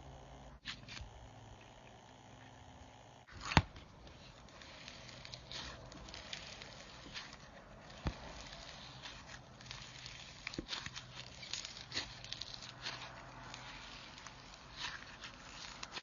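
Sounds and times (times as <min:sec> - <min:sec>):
slime squishing: 0:03.3 - 0:16.0
slime popping: 0:04.5 - 0:16.0.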